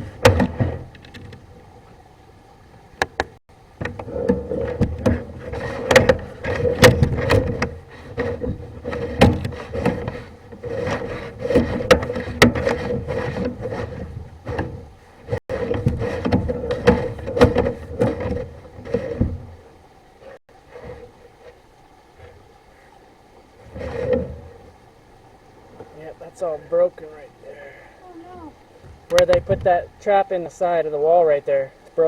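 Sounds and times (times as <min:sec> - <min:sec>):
knocks clicks and scrapes in pipe: 0:00.0 - 0:02.0, 0:03.0 - 0:23.0, 0:23.6 - 0:24.8, 0:28.8 - 0:29.8
steady hum: 0:00.0 - 0:32.0.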